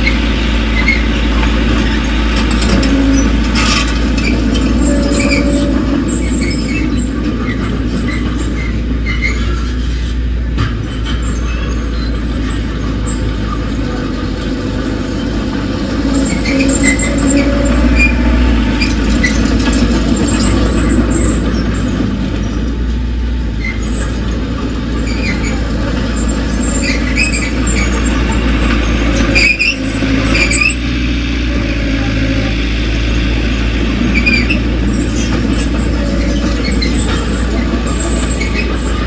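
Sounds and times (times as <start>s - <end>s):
diesel earthmoving machinery rumbling: 0.0s - 39.0s
short high squeals: 1.8s - 10.2s, 16.0s - 22.6s, 25.0s - 30.9s.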